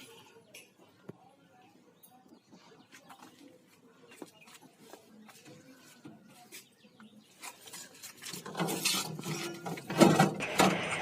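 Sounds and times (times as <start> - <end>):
rustling and scraping: 2.6 - 10.9.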